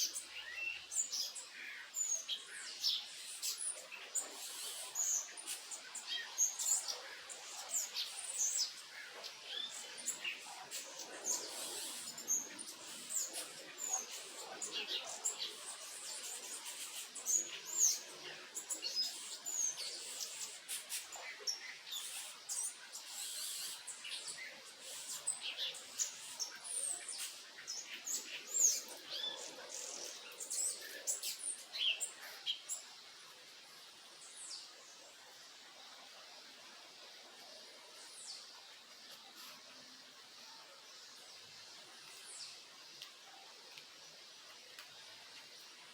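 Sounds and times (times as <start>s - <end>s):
birds chirping and calling: 0.0s - 32.9s
faint steady hiss: 0.0s - 45.9s.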